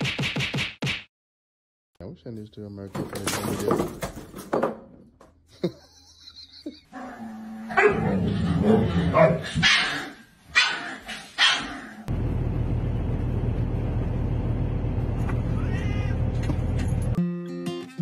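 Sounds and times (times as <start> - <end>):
dog barking: 7.7 - 8.1, 9.1 - 11.8
cat meow: 15.4 - 16.3.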